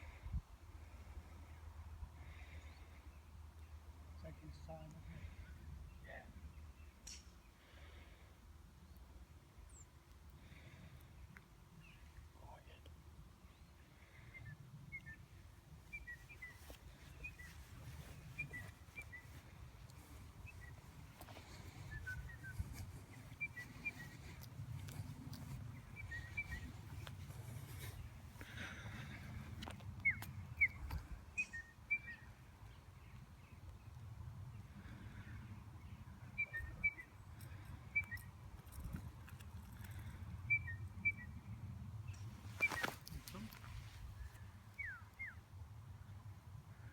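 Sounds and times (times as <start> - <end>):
bird chirping: 13.5 - 29.2, 30.0 - 33.6, 35.8 - 37.2.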